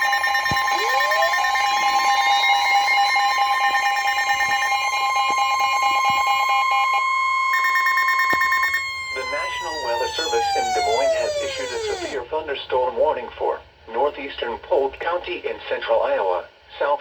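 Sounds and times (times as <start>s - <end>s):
pulsing tone: 0.0s - 12.2s
steady warning alarm tone: 0.0s - 12.2s.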